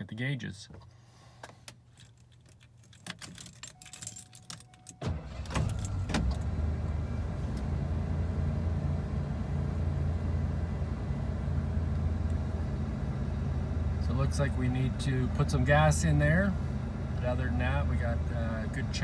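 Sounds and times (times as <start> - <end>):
keys jangling: 1.9 - 5.0
pickup engine starting and idling: 5.0 - 19.0.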